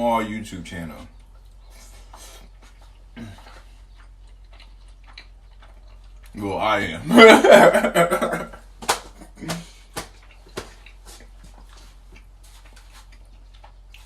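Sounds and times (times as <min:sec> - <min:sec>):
chewing with wet mouth clicks: 0:01.1 - 0:06.4, 0:09.6 - 0:14.0.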